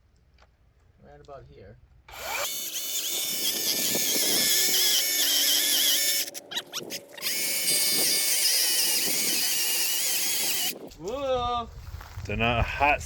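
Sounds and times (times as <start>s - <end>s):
electric chainsaw cutting tree: 2.1s - 10.8s.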